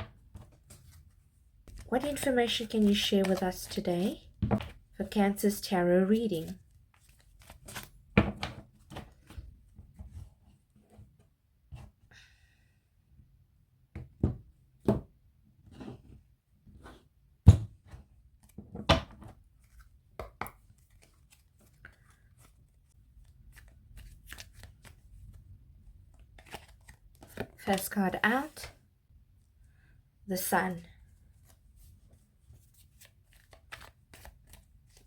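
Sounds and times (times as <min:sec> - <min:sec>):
cards being shuffled: 0:00.3 - 0:04.8, 0:06.4 - 0:08.0, 0:19.6 - 0:25.4, 0:26.1 - 0:27.9, 0:31.4 - 0:35.0.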